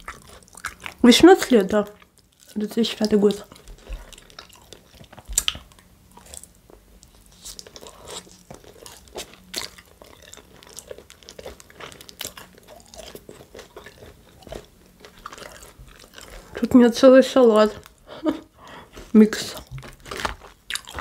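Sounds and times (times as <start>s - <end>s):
chewing with crunches: 0.0s - 21.0s.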